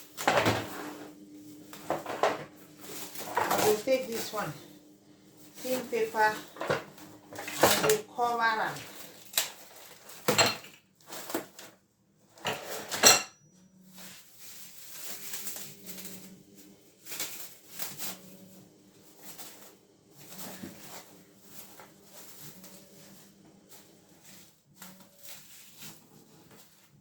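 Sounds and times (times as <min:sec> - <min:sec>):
paper rustling: 0:01.4 - 0:10.3, 0:13.9 - 0:27.0
bowls and utensils clattering: 0:01.8 - 0:04.6, 0:05.7 - 0:11.5, 0:12.4 - 0:13.4.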